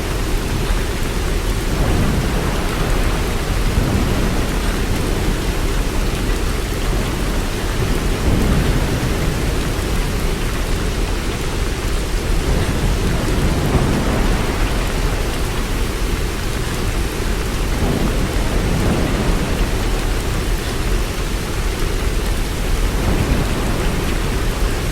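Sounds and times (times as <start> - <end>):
heavy rain falling: 0.0 - 24.9
distant thunder rumbling: 0.2 - 11.0, 12.1 - 24.9.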